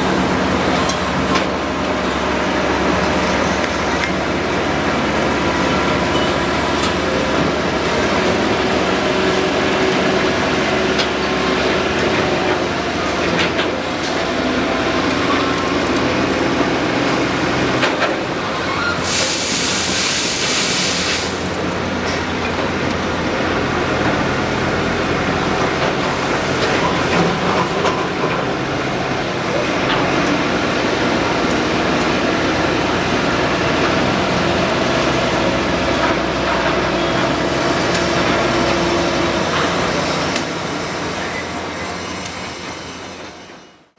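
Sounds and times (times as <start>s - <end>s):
excavator diesel engine running: 0.0s - 43.9s
hiss: 18.7s - 22.5s.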